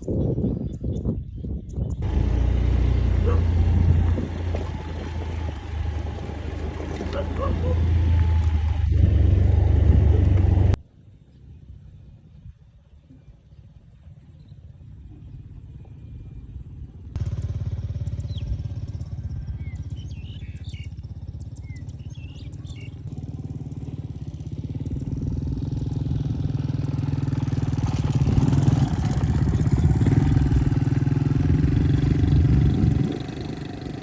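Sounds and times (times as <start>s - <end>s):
small engine running: 2.0s - 10.8s, 17.2s - 34.0s
bird chirps: 19.2s - 23.1s.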